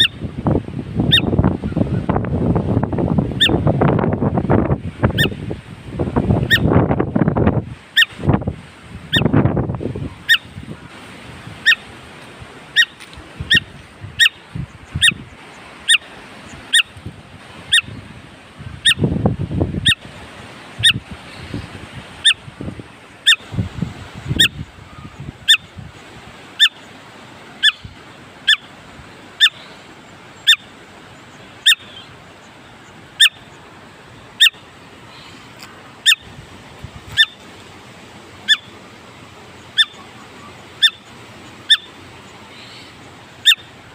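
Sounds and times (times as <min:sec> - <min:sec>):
low wind or handling rumble: 0:00.0 - 0:26.4, 0:31.2 - 0:43.9
bird calling sharp notes: 0:11.6 - 0:11.9, 0:12.7 - 0:17.0, 0:29.4 - 0:29.8, 0:31.3 - 0:32.2, 0:33.2 - 0:36.3, 0:37.1 - 0:37.5, 0:38.4 - 0:38.8, 0:39.6 - 0:43.8.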